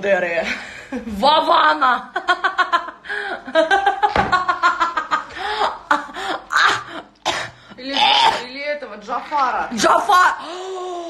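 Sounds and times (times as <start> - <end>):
women speaking: 0.0 - 2.2, 7.8 - 11.0
women laughing: 2.1 - 7.1.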